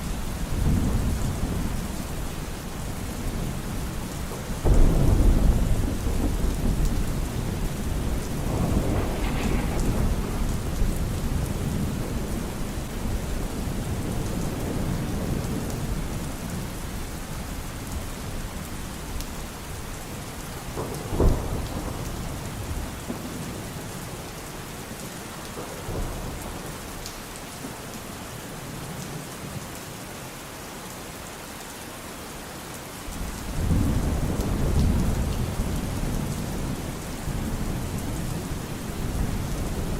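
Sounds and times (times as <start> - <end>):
steady rain: 0.0 - 39.9
rolling thunder: 0.4 - 17.0, 18.2 - 23.9
sharp thunder crack: 4.6 - 12.6.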